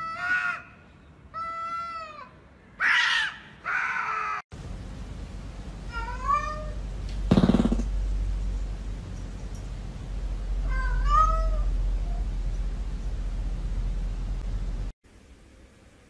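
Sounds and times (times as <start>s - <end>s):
cats yowling: 1.4s - 4.4s, 5.9s - 6.8s, 10.6s - 12.3s
cat meowing: 5.9s - 6.8s, 10.6s - 11.7s.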